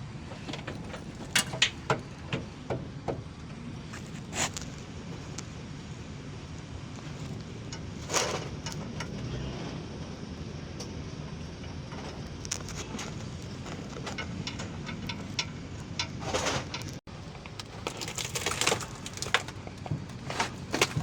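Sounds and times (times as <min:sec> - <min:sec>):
tools and metal parts clattering: 0:00.3 - 0:03.3, 0:07.0 - 0:09.3, 0:11.9 - 0:21.0.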